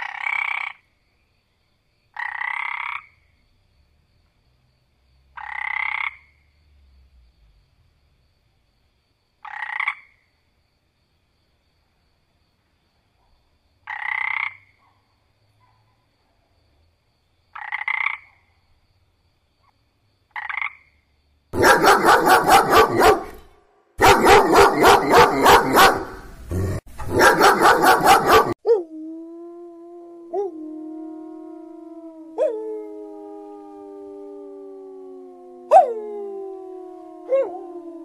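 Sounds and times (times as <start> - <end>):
frog croaks: 0.0 - 0.9, 2.1 - 3.4, 5.3 - 6.5, 9.4 - 10.3, 13.8 - 14.8, 17.5 - 18.6, 19.6 - 22.0
dog howling: 21.6 - 23.4, 24.0 - 38.0
dog barking rapidly: 21.6 - 28.6.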